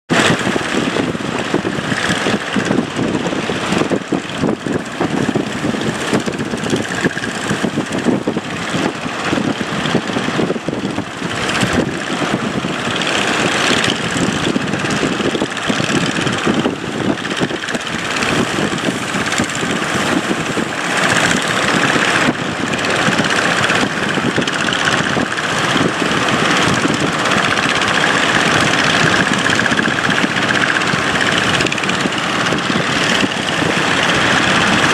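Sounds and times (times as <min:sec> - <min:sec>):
boat engine running: 0:00.1 - 0:34.9
dense rushing noise: 0:00.1 - 0:34.9.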